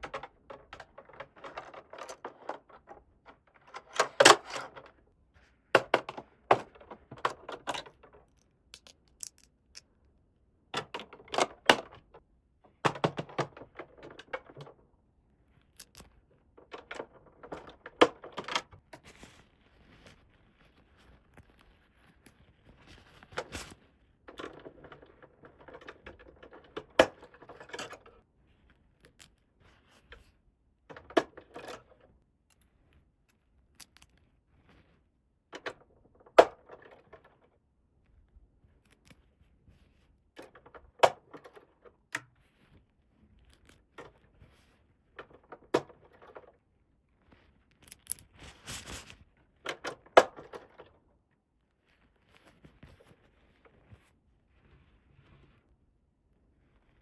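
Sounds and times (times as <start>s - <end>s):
plastic pieces clicking and tapping: 0.0s - 5.0s, 5.8s - 9.9s, 10.8s - 14.8s, 15.8s - 18.7s, 47.8s - 48.5s
plastic rustling and scraping: 0.0s - 8.4s, 10.8s - 14.9s, 15.6s - 32.2s, 39.2s - 51.1s, 51.7s - 55.9s.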